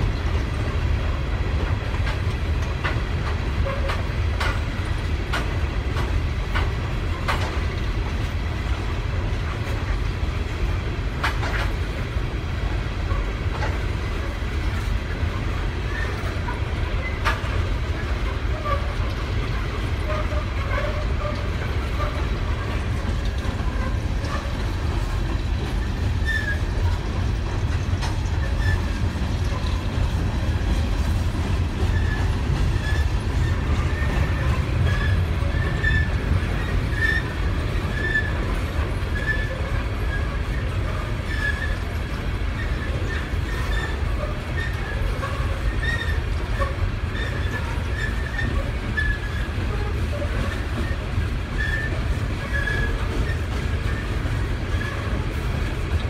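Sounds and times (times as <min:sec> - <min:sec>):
train wheels rumbling on rails: 0:00.0 - 0:56.0
high wheel squeals: 0:25.8 - 0:26.9, 0:28.4 - 0:29.0, 0:31.8 - 0:38.5, 0:39.1 - 0:41.9, 0:42.6 - 0:55.2.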